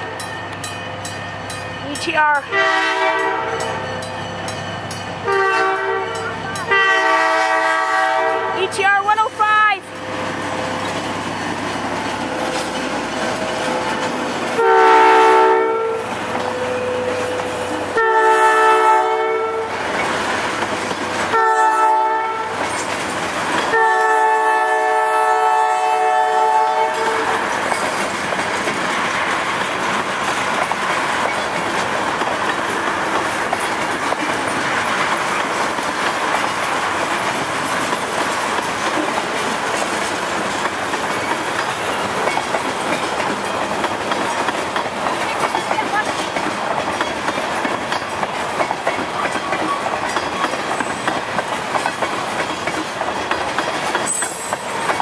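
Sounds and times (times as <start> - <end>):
locomotive air horn blasts: 2.5 - 3.8, 5.2 - 8.8, 14.6 - 16.1, 17.9 - 19.7, 21.3 - 22.6, 23.7 - 27.4
train wheels clicking over rail joints: 9.9 - 14.7, 16.1 - 18.0, 19.7 - 21.8, 22.5 - 24.2, 26.8 - 55.0.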